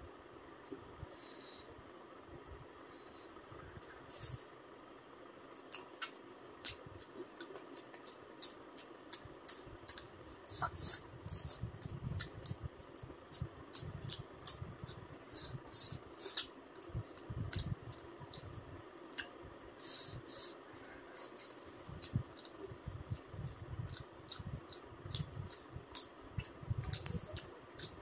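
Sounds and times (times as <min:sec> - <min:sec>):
wet chewing mouth sounds: 0:05.5 - 0:19.3, 0:20.8 - 0:28.0.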